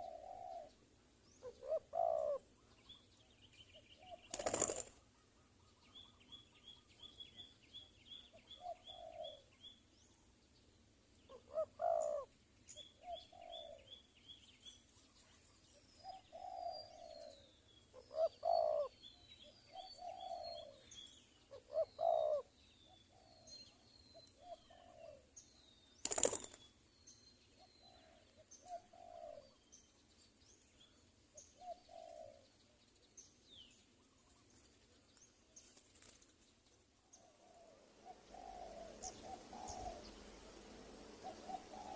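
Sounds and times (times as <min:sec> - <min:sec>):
doves cooing: 0:00.0 - 0:00.8, 0:01.4 - 0:02.5, 0:04.0 - 0:05.1, 0:08.5 - 0:09.5, 0:11.3 - 0:12.3, 0:13.0 - 0:13.9, 0:16.0 - 0:18.9, 0:19.7 - 0:20.9, 0:21.5 - 0:22.5, 0:24.4 - 0:25.3, 0:27.8 - 0:29.5, 0:31.6 - 0:32.5, 0:37.1 - 0:41.9
small birds chirping: 0:00.0 - 0:41.9.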